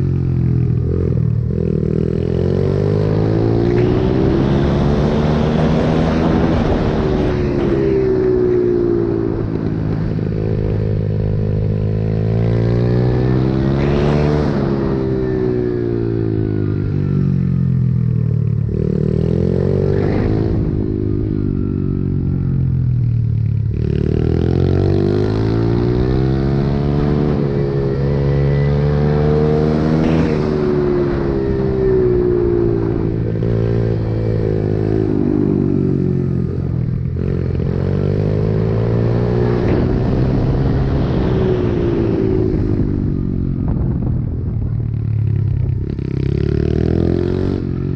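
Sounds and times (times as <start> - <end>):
pit bike engine revving: 12.3 - 15.1.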